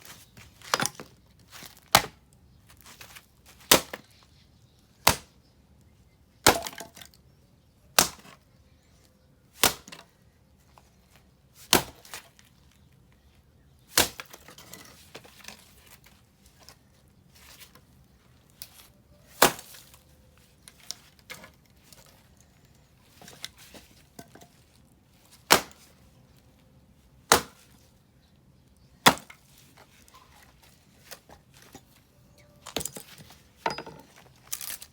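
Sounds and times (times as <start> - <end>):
axe splitting firewood: 0.0 - 4.1, 5.0 - 5.4, 6.4 - 7.2, 7.9 - 8.4, 9.5 - 10.1, 11.6 - 12.5, 13.8 - 16.7, 18.6 - 26.1, 27.2 - 27.8, 28.8 - 32.0, 32.6 - 34.9.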